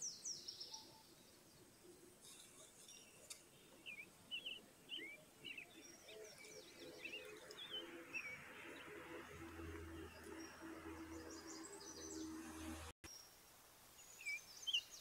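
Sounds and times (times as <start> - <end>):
small birds chirping: 0.0 - 15.0
faint hiss: 13.1 - 15.0.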